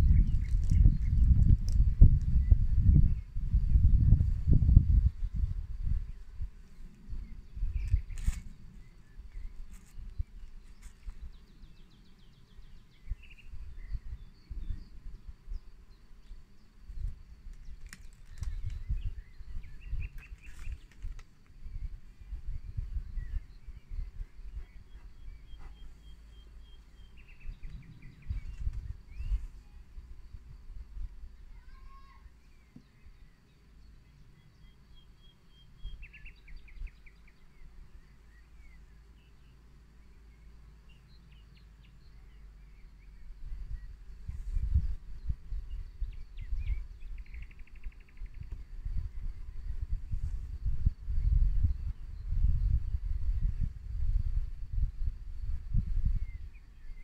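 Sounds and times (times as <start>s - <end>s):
wind on microphone: 0.0s - 26.2s, 27.0s - 32.3s, 42.2s - 57.0s
small birds chirping: 0.0s - 53.8s, 55.4s - 57.0s
bird trill: 46.4s - 48.4s.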